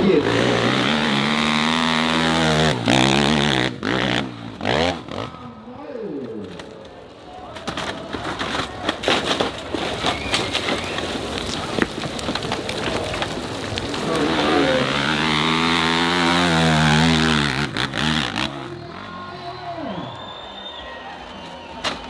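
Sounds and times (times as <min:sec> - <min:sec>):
dirt bike engine revving: 0:00.0 - 0:05.7, 0:13.9 - 0:19.6.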